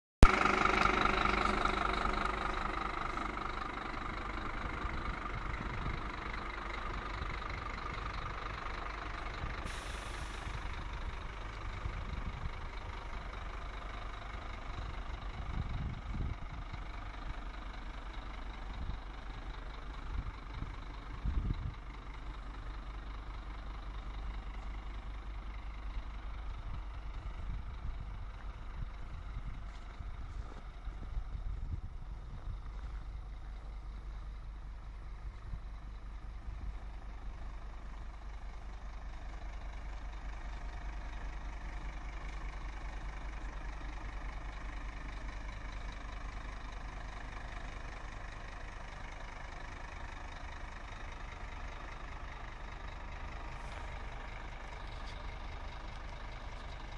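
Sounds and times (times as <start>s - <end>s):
truck diesel engine running: 0.2s - 56.9s
short hiss: 9.6s - 10.6s.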